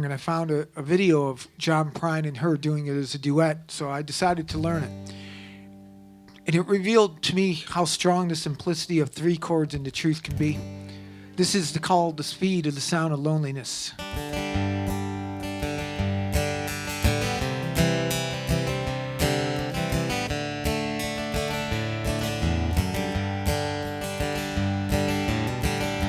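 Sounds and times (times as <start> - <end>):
acoustic guitar strumming: 4.2 - 9.4, 10.3 - 12.9, 13.9 - 26.0.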